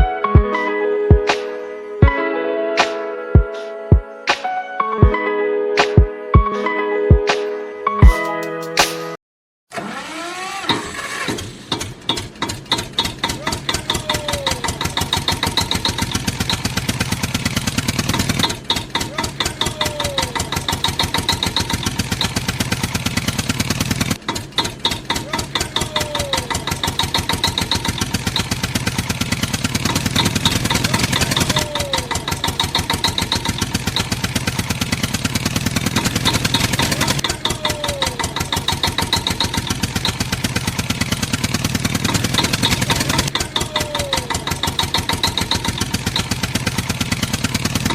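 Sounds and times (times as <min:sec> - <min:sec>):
tractor engine putter: 0:09.7 - 0:47.9.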